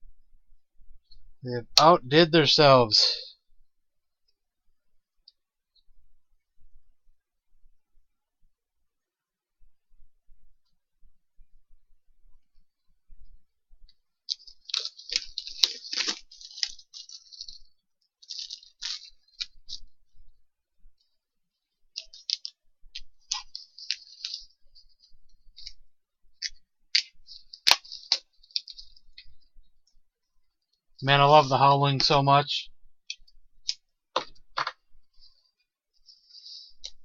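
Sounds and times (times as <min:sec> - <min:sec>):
plastic shrink wrap crinkling: 0:14.2 - 0:19.9, 0:21.9 - 0:25.8, 0:26.4 - 0:29.4.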